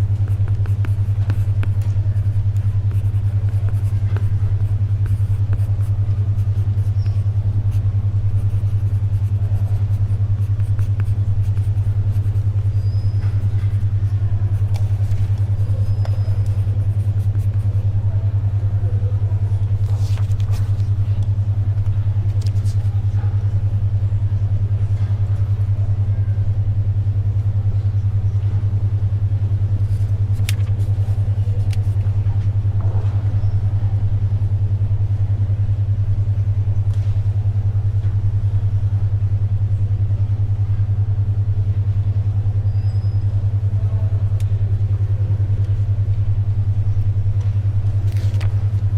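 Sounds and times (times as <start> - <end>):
pencil writing: 0.0 - 17.8, 29.8 - 32.0
pulsing low hum tone: 0.0 - 48.9
pages turning: 19.6 - 20.9, 22.3 - 22.9, 29.9 - 32.0, 48.1 - 48.6.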